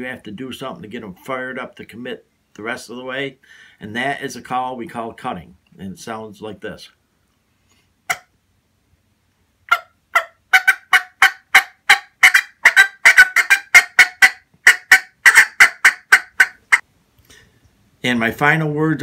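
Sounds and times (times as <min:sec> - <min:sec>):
turkey call clucks: 0:08.1 - 0:08.4, 0:09.7 - 0:16.8.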